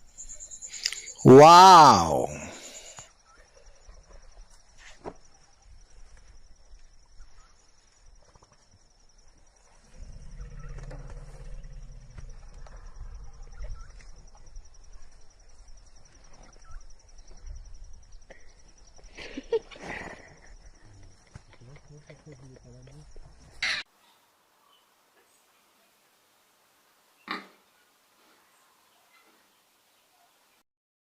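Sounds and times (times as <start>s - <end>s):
insects trilling: 0.0s - 23.8s.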